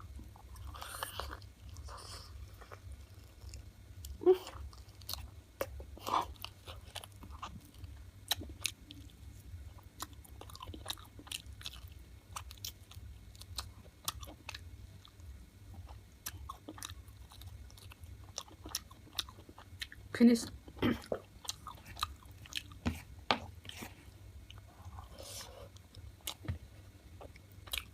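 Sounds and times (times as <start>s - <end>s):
person chewing chicken: 9.8s - 15.2s, 15.8s - 20.0s, 21.0s - 26.5s, 27.2s - 27.9s.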